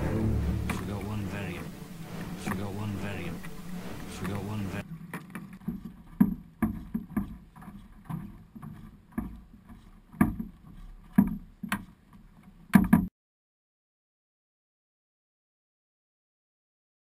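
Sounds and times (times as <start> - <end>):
paddle splashing water: 0.0 - 11.9.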